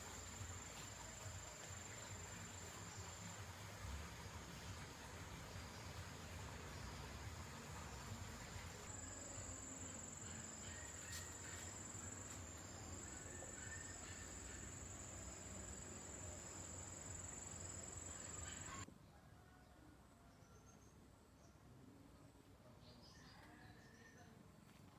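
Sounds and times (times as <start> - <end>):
high-pitched insect trill: 8.8 - 18.8.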